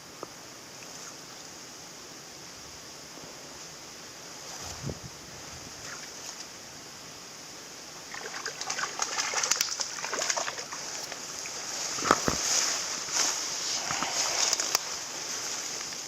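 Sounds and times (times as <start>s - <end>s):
river water running: 5.8s - 16.0s
fish splashing at surface: 8.1s - 12.7s.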